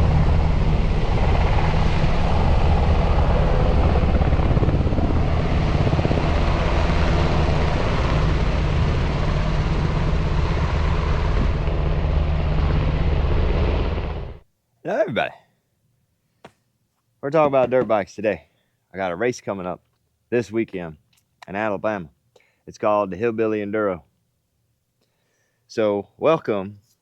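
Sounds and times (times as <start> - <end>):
engine drone: 0.0 - 14.4.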